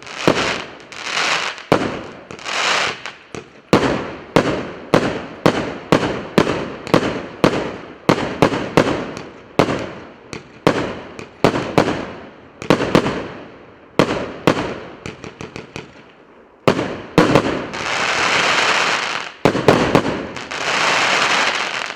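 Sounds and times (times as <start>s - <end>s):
firework crackling: 0.0s - 13.3s, 16.7s - 21.9s
firework bangs: 0.0s - 13.4s, 14.0s - 16.1s, 16.7s - 21.9s.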